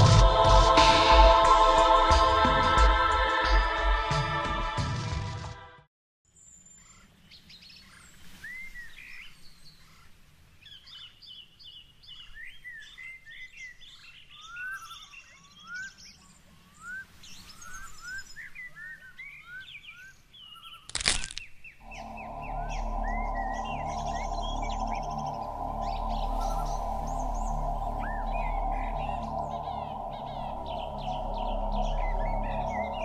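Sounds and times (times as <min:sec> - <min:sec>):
birds chirping and singing: 0:06.4 - 0:33.0
low outdoor rumble: 0:21.8 - 0:33.0.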